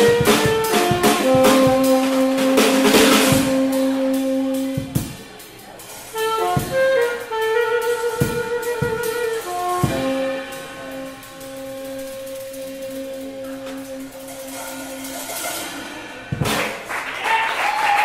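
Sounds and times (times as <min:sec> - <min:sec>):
saxophone holding long notes: 0:00.0 - 0:05.2, 0:06.1 - 0:15.2
drum kit: 0:00.0 - 0:18.0
cymbal wash: 0:09.5 - 0:16.5.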